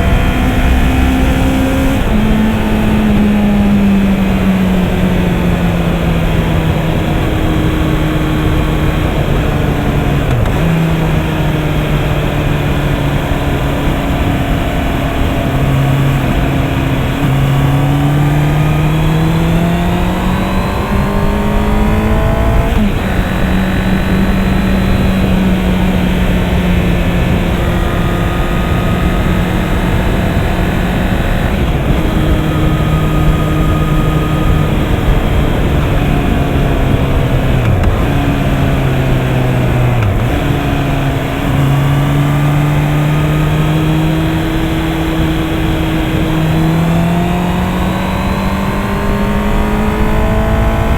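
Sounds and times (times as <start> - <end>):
motorcycle engine accelerating: 0.0 - 50.9
rush of riding wind: 0.0 - 50.9.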